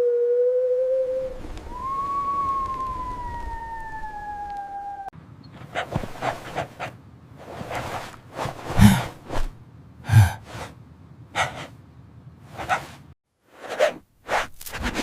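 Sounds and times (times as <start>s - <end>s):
cartoon dog huffing and snorting: 5.6s - 11.8s, 12.5s - 13.1s.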